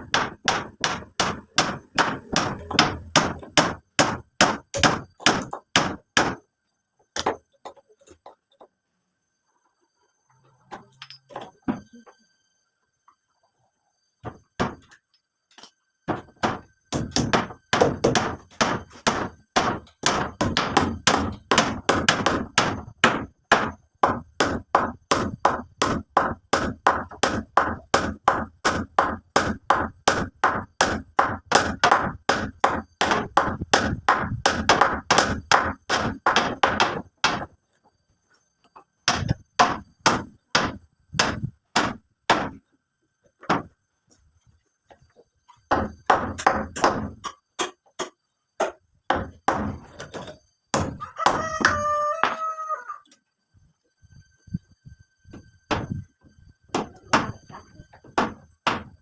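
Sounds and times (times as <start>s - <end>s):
hand tool striking hard material: 0.0s - 6.4s, 15.6s - 37.6s, 39.1s - 42.6s, 56.7s - 59.0s.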